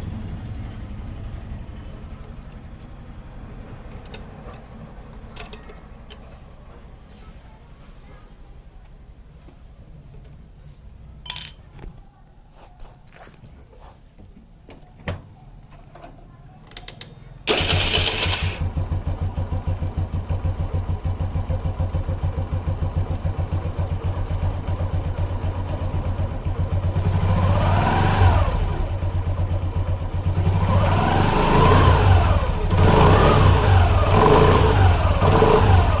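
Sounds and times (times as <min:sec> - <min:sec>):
scooter engine idling and revving: 0:00.0 - 0:05.0, 0:17.5 - 0:36.0.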